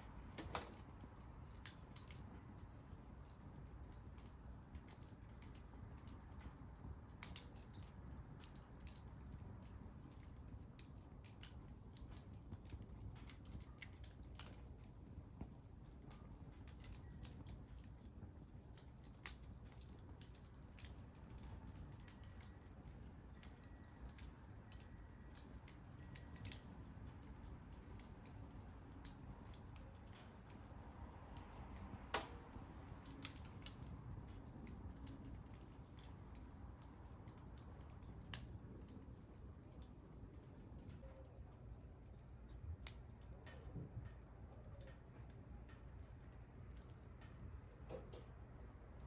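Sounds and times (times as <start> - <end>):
fire popping and snapping: 0.0 - 49.0
low hum of burning fire: 0.0 - 49.0.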